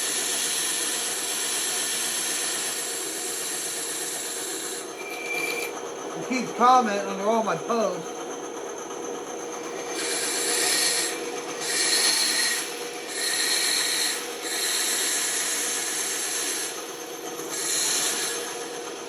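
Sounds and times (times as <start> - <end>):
band saw motor hum: 0.0 - 19.0
saw blade rasping through wood: 10.0 - 16.8, 17.5 - 18.6.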